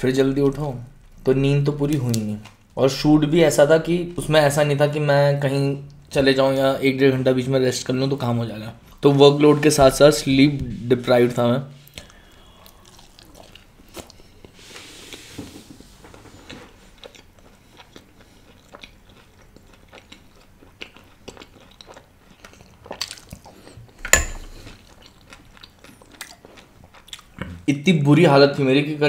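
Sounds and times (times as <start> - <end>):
crunchy food chewing: 11.9 - 14.6, 16.3 - 27.6.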